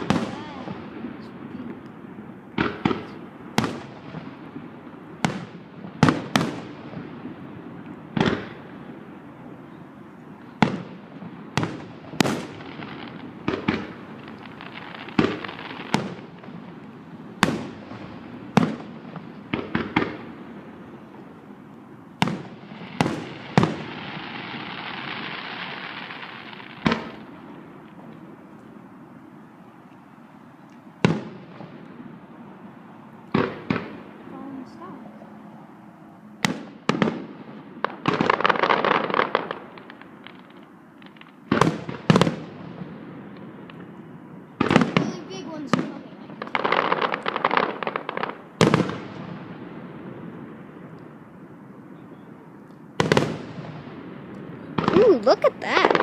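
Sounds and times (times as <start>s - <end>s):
fireworks crackling: 0.0s - 56.0s.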